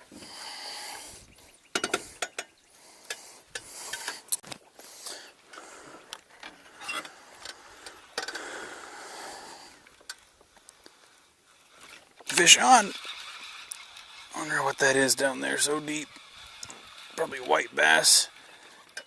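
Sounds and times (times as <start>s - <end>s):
tackle clicks and rattles: 1.7s - 8.6s, 9.8s - 19.0s
fishing reel ratcheting: 9.4s - 19.0s.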